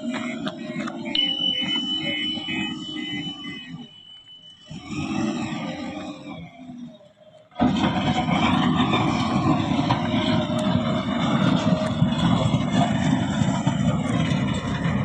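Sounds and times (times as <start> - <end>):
diesel engine running under load: 7.6 - 15.0.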